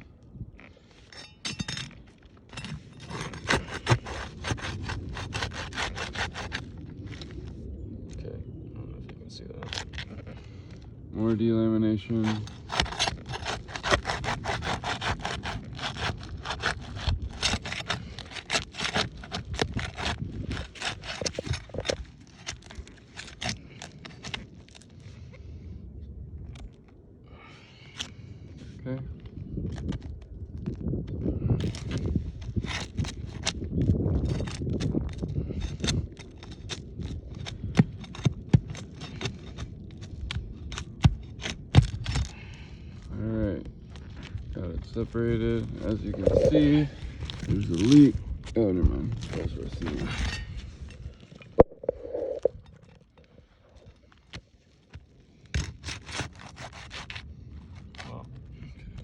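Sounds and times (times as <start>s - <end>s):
shingle cracking and snapping: 1.4s - 7.5s, 9.6s - 10.5s, 12.2s - 25.0s, 29.3s - 43.1s, 45.4s - 51.8s, 53.9s - 58.9s
scraping under asphalt shingles: 31.5s - 59.0s.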